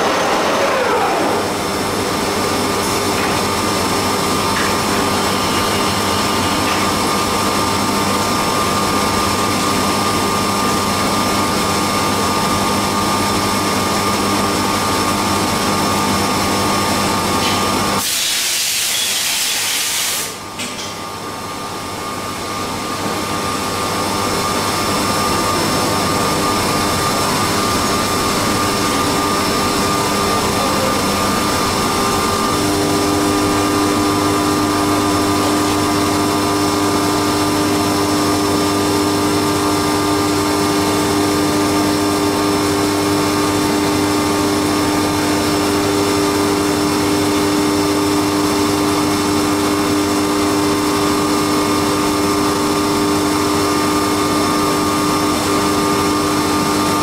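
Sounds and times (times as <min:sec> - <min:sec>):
low steady machine tone: 0:00.0 - 0:09.4
milling machine whining: 0:00.0 - 0:10.5, 0:21.0 - 0:41.0
loud hiss: 0:18.0 - 0:20.4.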